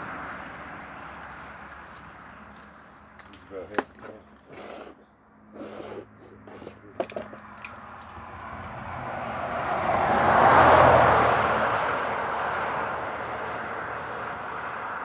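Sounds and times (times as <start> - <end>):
motor vehicle passing by: 4.5 - 15.0.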